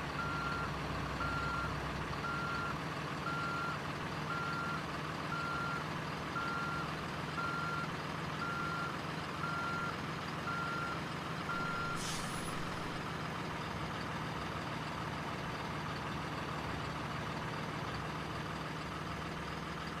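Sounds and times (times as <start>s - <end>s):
reversing alarm beeping: 0.2s - 2.7s, 3.3s - 5.8s, 6.4s - 6.8s, 7.4s - 13.0s
air-brake hiss: 11.7s - 13.0s.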